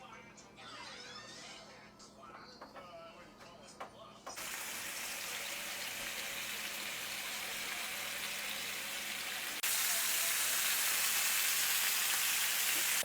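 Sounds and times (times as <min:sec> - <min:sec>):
fish sizzling in hot oil: 0:04.4 - 0:13.0.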